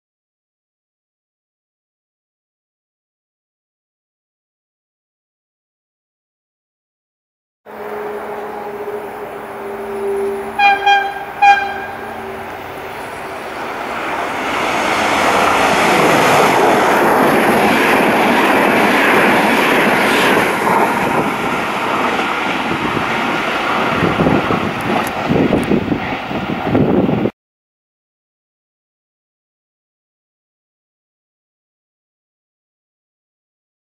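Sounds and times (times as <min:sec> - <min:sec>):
locomotive horn blasts: 0:07.7 - 0:13.4
train roaring past: 0:07.7 - 0:27.3.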